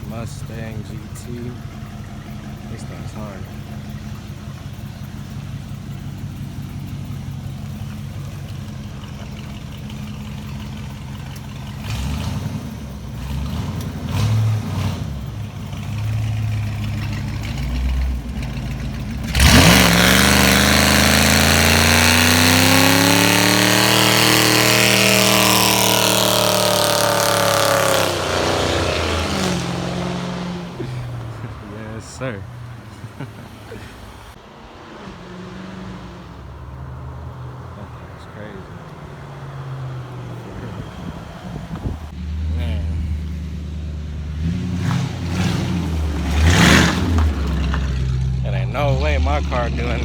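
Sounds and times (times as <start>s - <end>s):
car engine revving: 0.0s - 50.0s
tyres squealing: 15.7s - 43.2s.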